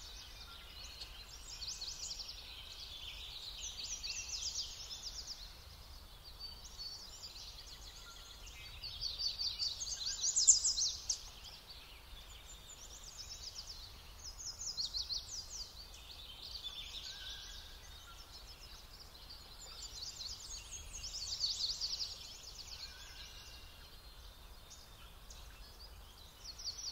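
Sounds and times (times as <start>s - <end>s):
songbirds singing: 0.0s - 26.9s.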